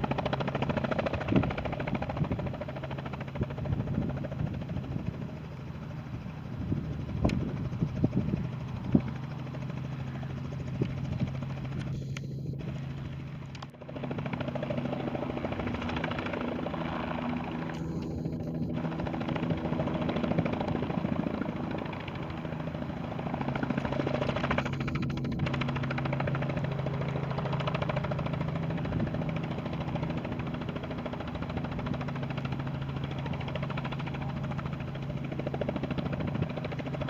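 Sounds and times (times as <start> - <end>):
helicopter engine and rotor drone: 0.0 - 37.0.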